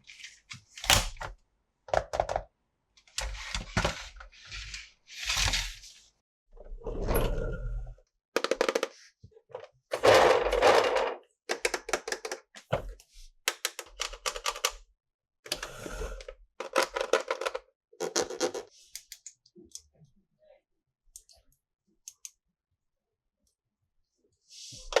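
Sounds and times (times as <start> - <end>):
plastic toy parts clicking: 8.4 - 8.9, 11.5 - 12.4, 13.5 - 14.8, 16.6 - 17.6.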